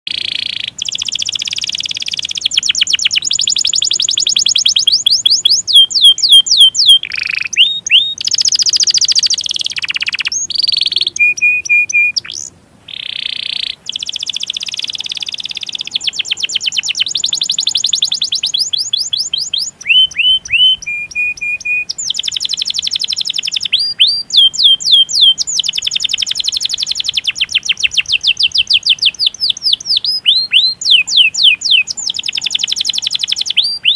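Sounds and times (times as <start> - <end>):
canary singing trills and chirps: 0.1 - 33.9.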